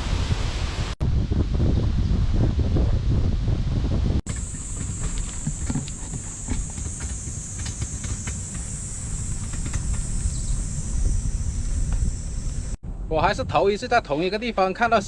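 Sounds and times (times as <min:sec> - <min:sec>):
wind rumble on microphone: 0:00.0 - 0:15.0
insects buzzing: 0:04.3 - 0:12.8.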